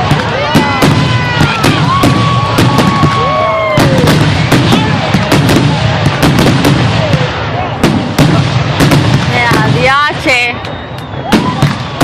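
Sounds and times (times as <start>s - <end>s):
fireworks crackling: 0.0s - 12.0s
fireworks sharp bangs: 0.0s - 12.0s
falling whistling tones: 10.2s - 11.8s.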